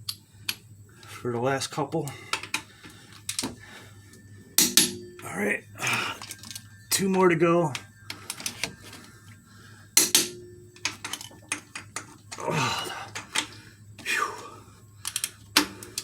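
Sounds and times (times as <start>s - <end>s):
torque wrench metallic clicks: 15.0s - 16.0s.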